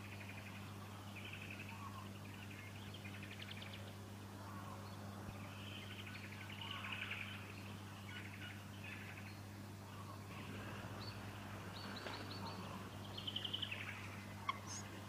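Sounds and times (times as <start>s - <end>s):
nestlings begging calls: 11.0s - 15.0s.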